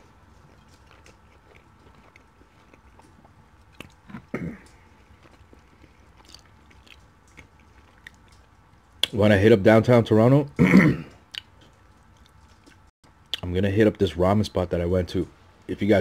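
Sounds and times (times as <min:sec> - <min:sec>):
person chewing: 0:00.0 - 0:09.1, 0:11.1 - 0:13.5
wet mouth clicks and smacks: 0:11.3 - 0:13.5.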